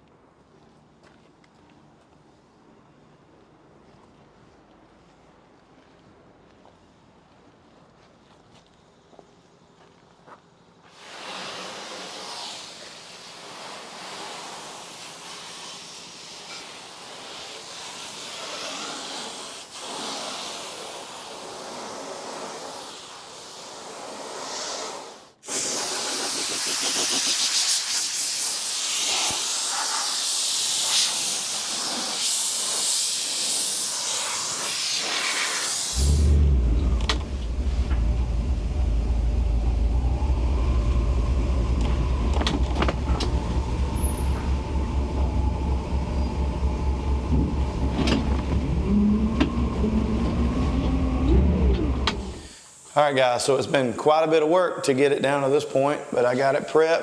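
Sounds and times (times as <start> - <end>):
compressed air hissing: 10.9 - 53.9
low motor hum: 35.9 - 52.5.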